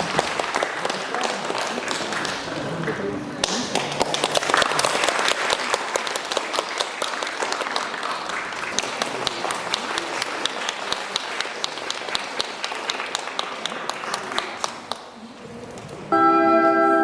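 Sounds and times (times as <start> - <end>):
murmuring voices: 0.0 - 6.2, 8.0 - 12.5, 13.4 - 16.1
audience applauding: 0.0 - 16.1.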